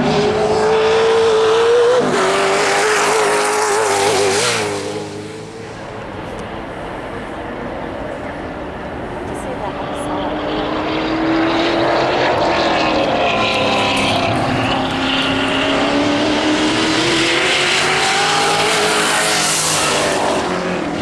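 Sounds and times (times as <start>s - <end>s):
race car engines running hard: 0.0s - 21.0s.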